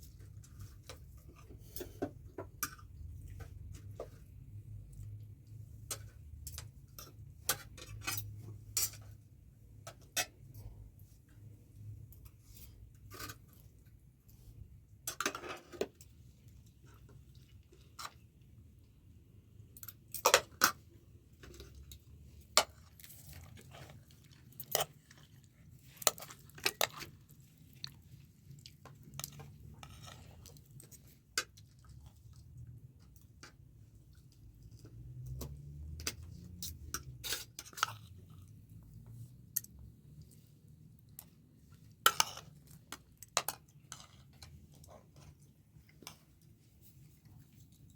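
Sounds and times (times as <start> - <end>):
person chewing: 22.8 - 32.4.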